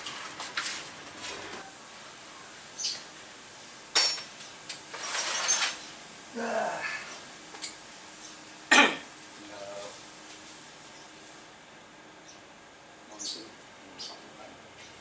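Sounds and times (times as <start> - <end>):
rustling scrape: 0.0 - 1.6, 4.9 - 5.9
sharp knocks and clinks: 3.9 - 4.4.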